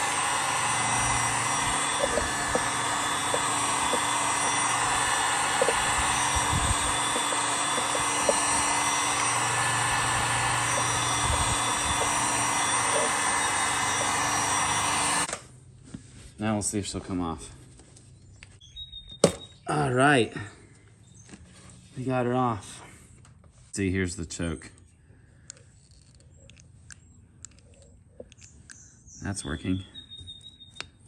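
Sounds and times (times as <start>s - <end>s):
heat gun blowing: 0.0s - 15.4s.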